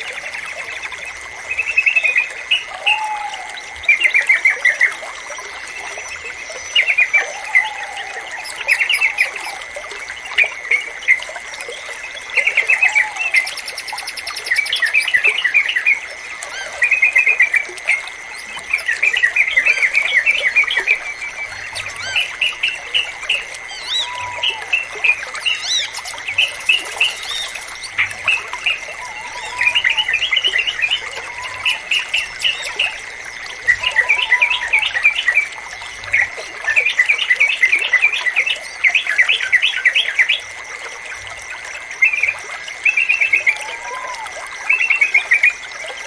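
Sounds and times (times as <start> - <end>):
trickling water: 0.0 - 46.0
bulbuls singing bubbly phrases: 18.3 - 38.6.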